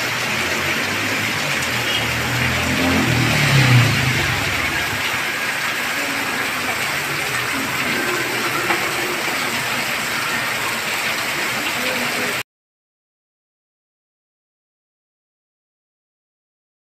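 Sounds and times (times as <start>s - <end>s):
heavy rain pouring: 0.0s - 12.4s
water streaming off roof: 0.0s - 12.4s.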